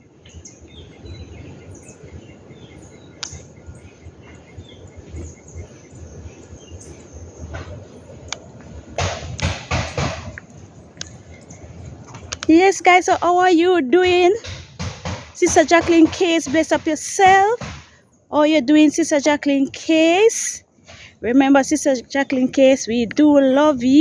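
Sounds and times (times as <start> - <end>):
birds chirping: 0.0 - 24.0
scattered clicks: 12.0 - 13.2.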